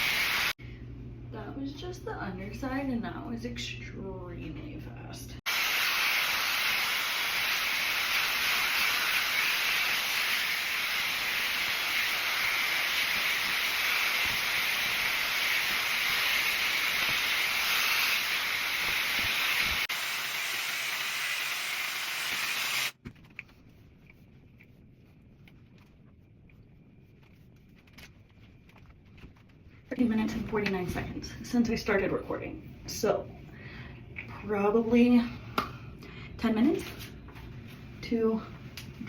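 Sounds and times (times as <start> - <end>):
hot air brush blowing: 0.0 - 0.6, 5.5 - 23.0.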